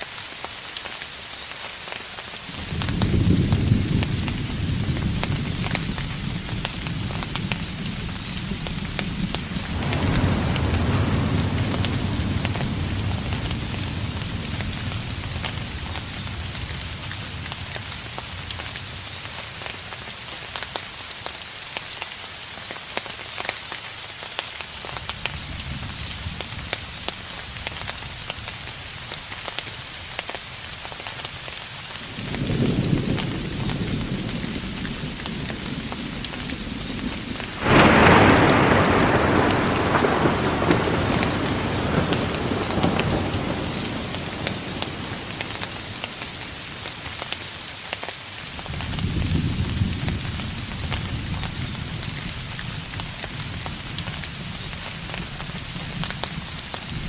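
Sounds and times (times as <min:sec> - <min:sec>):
steady rain falling: 0:00.0 - 0:57.0
thunder rumbling: 0:02.6 - 0:19.0, 0:32.1 - 0:47.7, 0:48.5 - 0:57.0.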